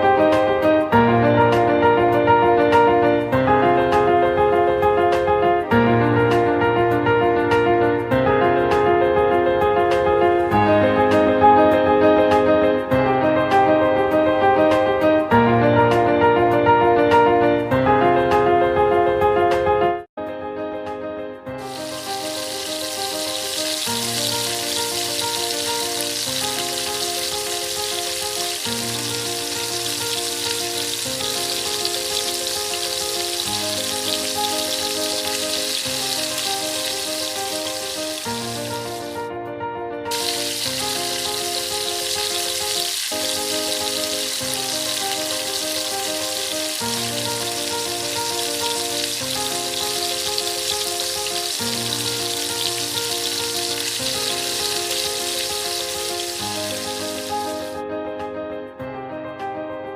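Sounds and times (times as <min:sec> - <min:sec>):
food sizzling in a hot pan: 0:21.6 - 0:39.2, 0:40.1 - 0:57.7
background music: 0:21.6 - 0:39.3, 0:40.0 - 0:58.4.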